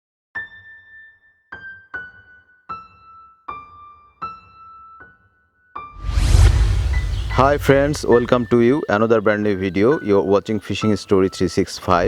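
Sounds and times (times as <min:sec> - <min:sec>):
high keyboard notes: 0:07.2 - 0:09.0.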